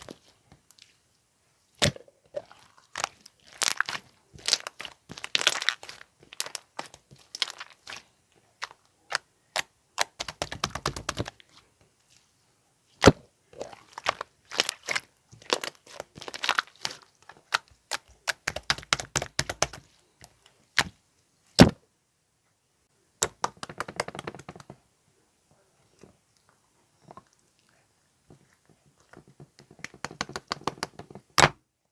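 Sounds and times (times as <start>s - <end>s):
slime crackling and popping: 1.8s - 11.4s, 13.0s - 19.8s.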